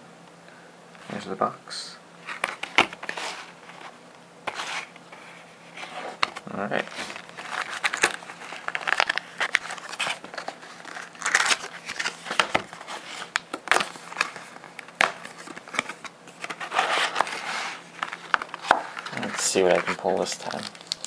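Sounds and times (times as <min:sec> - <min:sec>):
plastic wrapping crinkling and tearing: 0:06.2 - 0:21.0.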